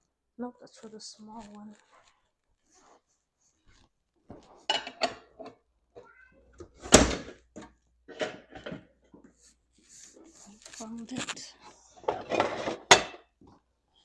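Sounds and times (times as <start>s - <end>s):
pots and lids clattering: 4.6s - 5.6s, 6.9s - 9.0s, 12.0s - 13.3s.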